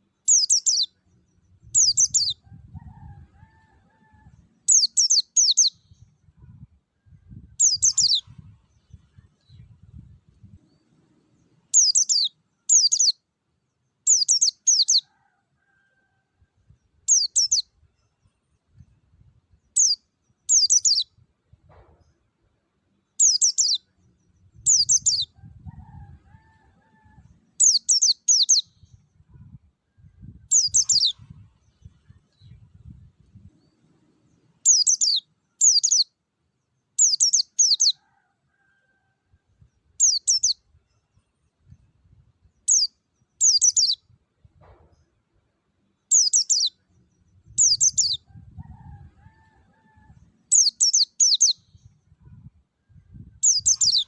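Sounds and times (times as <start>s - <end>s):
bird chirping high phrases: 0.3s - 2.4s, 4.7s - 6.0s, 7.6s - 8.4s, 11.8s - 13.2s, 14.1s - 15.0s, 17.1s - 17.6s, 19.7s - 21.0s, 23.2s - 23.8s, 24.6s - 25.3s, 27.6s - 28.9s, 30.5s - 31.3s, 34.7s - 36.1s, 37.0s - 38.0s, 40.0s - 40.6s, 42.7s - 44.0s, 46.1s - 46.8s, 47.4s - 48.2s, 50.5s - 51.8s, 53.5s - 54.0s.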